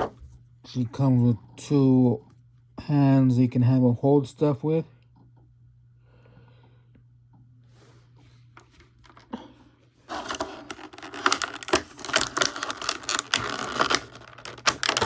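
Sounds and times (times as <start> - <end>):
plastic packaging crinkling: 10.1 - 15.0.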